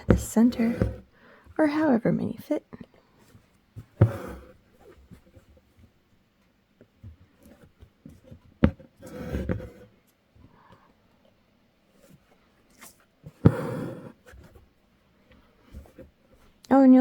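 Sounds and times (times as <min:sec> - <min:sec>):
needle tapping fabric: 0:00.0 - 0:01.1, 0:03.8 - 0:04.5, 0:13.4 - 0:14.4.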